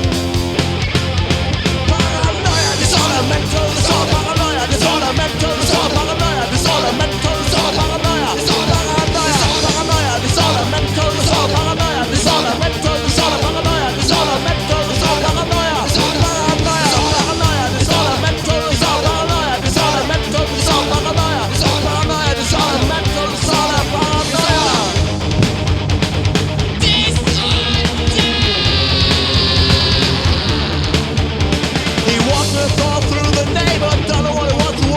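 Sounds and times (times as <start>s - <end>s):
bass guitar: 0.0s - 34.9s
drums at a driving beat: 0.0s - 34.9s
electric guitars: 0.0s - 34.9s.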